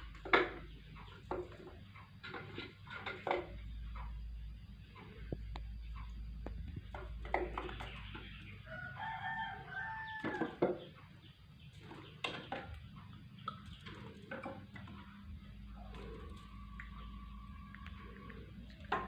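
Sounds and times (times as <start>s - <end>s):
long animal call: 15.7s - 18.6s.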